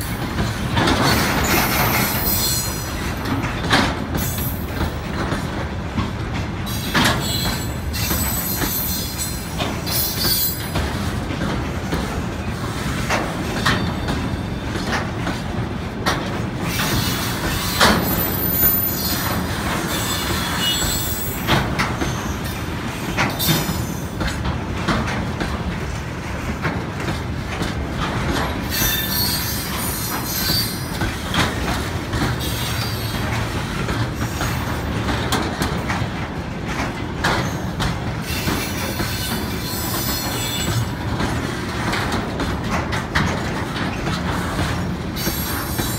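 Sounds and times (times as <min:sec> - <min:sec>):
wheels clicking over rail joints: 0:00.0 - 0:45.9
high-pitched wheel squeal: 0:07.2 - 0:10.6, 0:16.7 - 0:21.5, 0:28.7 - 0:31.0.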